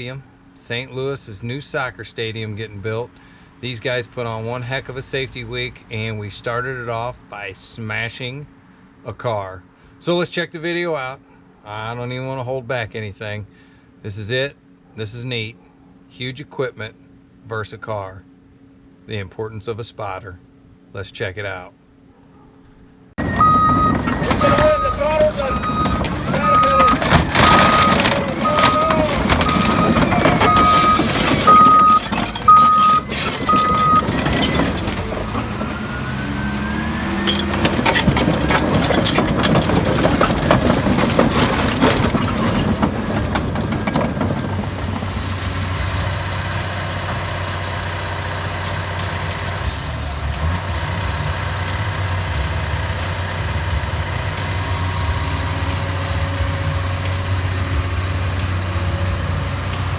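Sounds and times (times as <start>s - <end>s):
reversing alarm beeping: 23.2s - 35.2s
metal crunching and banging: 23.2s - 50.6s
diesel engine running: 23.2s - 59.9s.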